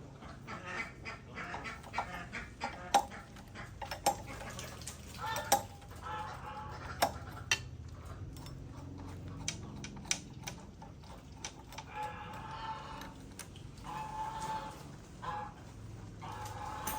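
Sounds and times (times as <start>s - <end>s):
metallic clinks of tools: 16.4s - 16.9s.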